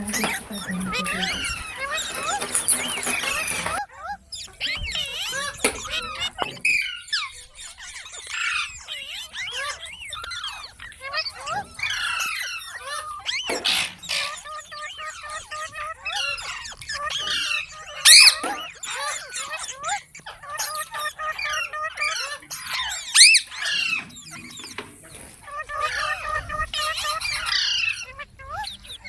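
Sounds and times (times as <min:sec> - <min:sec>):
parrot chattering: 0:00.0 - 0:03.8
parrot harsh squawks: 0:18.0 - 0:18.6.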